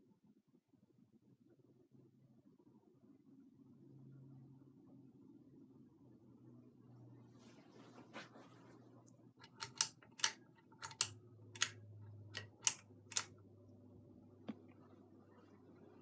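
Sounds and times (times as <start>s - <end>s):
sharp clicks: 9.4s - 13.3s.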